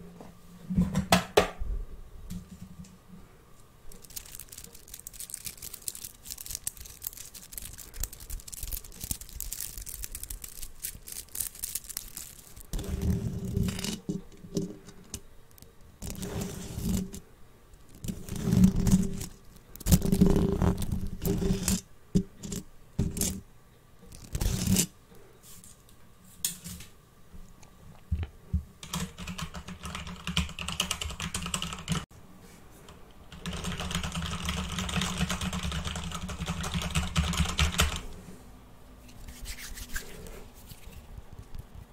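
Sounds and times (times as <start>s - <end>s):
rustling: 3.6s - 17.2s
handling sounds: 3.9s - 17.2s.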